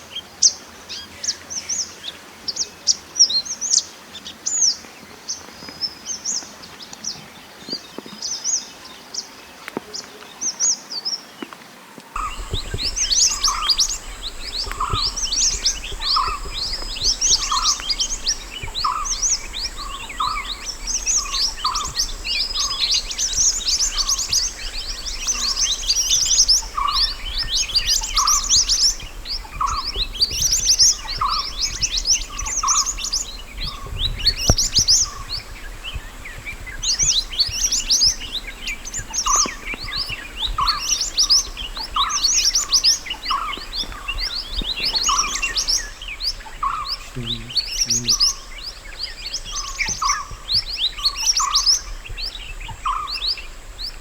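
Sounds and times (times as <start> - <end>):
bird chirps and trills: 12.2 - 54.0.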